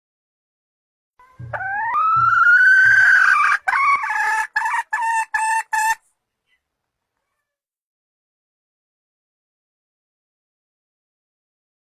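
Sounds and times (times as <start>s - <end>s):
junglefowl call: 1.2s - 6.0s.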